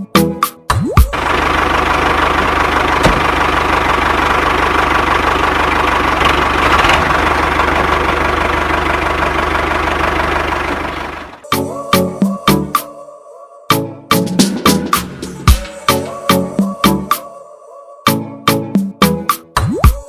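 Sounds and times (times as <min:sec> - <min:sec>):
tractor engine idling: 0:01.0 - 0:12.9.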